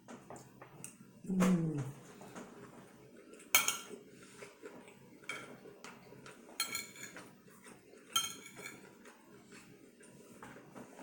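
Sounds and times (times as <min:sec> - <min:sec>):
metal utensils clinking on a dish: 0:03.5 - 0:04.0, 0:05.2 - 0:05.6, 0:06.2 - 0:07.3, 0:08.0 - 0:09.0.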